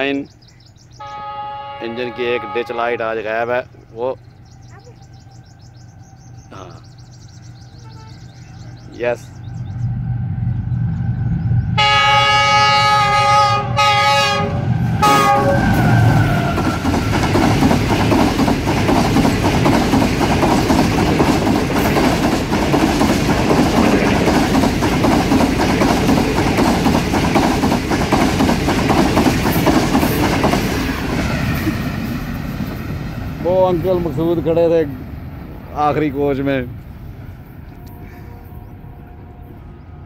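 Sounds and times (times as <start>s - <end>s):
locomotive horn blasts: 1.0s - 3.3s, 7.8s - 8.3s, 11.8s - 16.5s, 37.6s - 40.0s
wheels clattering over rail joints: 16.4s - 31.8s.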